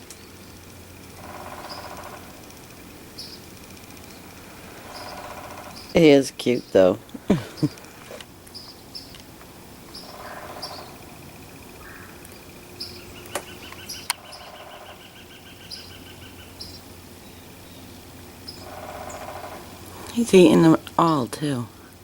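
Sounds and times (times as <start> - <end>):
low background noise: 0.0 - 22.0
small birds chirping: 0.0 - 22.0
bird trill: 1.2 - 2.5, 3.1 - 6.9, 9.9 - 21.2.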